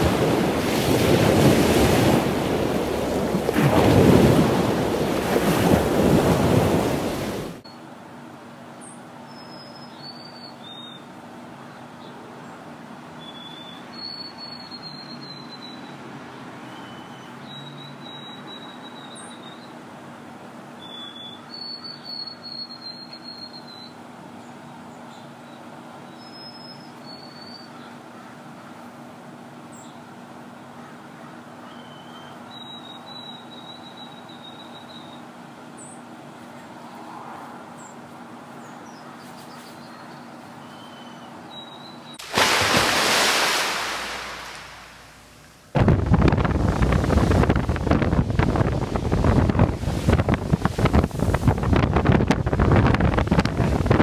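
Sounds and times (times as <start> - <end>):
storm wind and waves rushing: 0.0 - 7.6, 45.8 - 54.0
faint bird chirps: 8.8 - 11.1, 13.2 - 16.0, 16.7 - 19.8, 20.8 - 28.4, 31.6 - 36.0, 38.6 - 42.2
outdoor hiss: 42.2 - 51.7.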